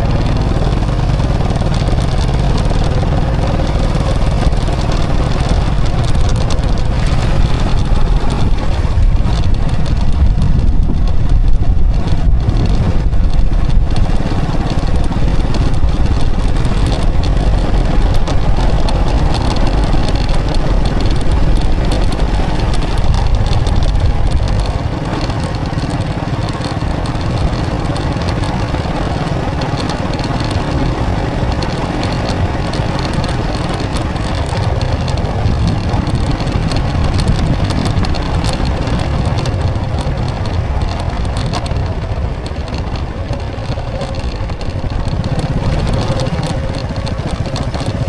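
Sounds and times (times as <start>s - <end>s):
motorbike engine running: 0.0s - 48.0s
wind and road noise rumble: 0.0s - 48.0s.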